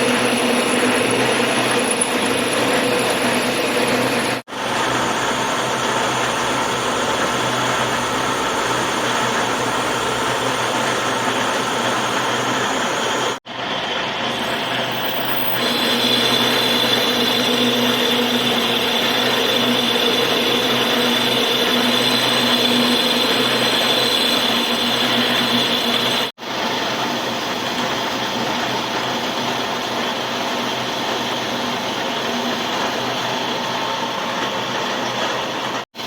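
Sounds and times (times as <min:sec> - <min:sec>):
power tool whining: 0:00.0 - 0:13.4, 0:14.1 - 0:26.3.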